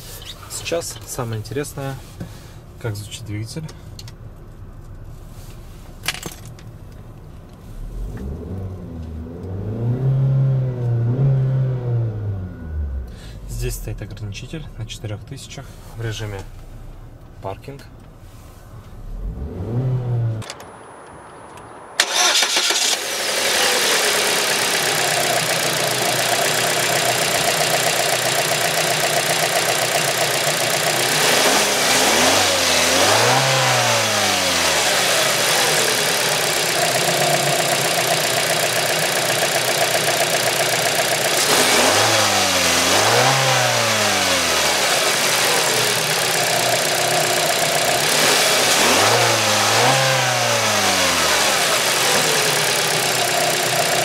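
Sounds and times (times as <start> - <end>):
car engine starting and idling: 0.0 - 54.0
car engine revving: 7.7 - 14.0, 19.0 - 54.0.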